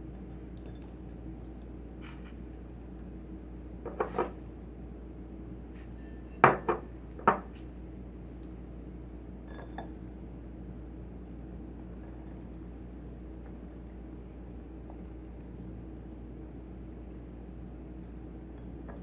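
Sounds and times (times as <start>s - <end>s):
tableware clinking on a table: 3.9s - 4.4s, 5.9s - 7.5s, 9.5s - 10.0s.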